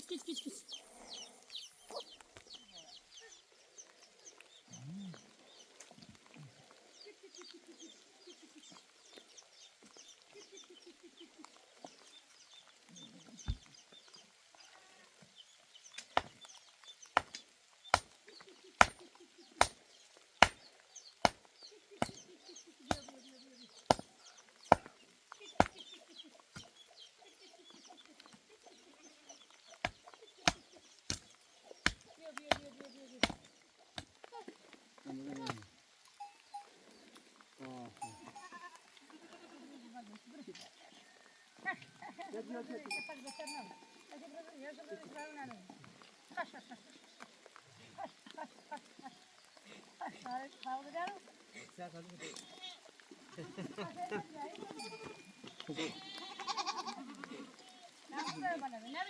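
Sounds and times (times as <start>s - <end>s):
chickens clucking: 0.0s - 3.3s.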